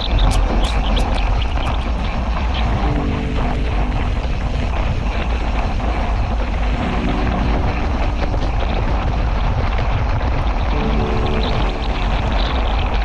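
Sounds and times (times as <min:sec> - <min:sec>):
wind buffeting microphone: 0:00.0 - 0:13.0
faint tune of held notes: 0:02.6 - 0:09.4, 0:10.7 - 0:13.0.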